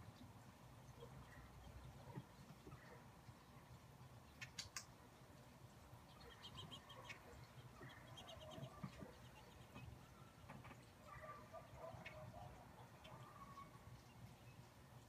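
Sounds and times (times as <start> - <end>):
sharp faint clicks: 4.4 - 5.0
faint small bird chirping: 6.0 - 15.0.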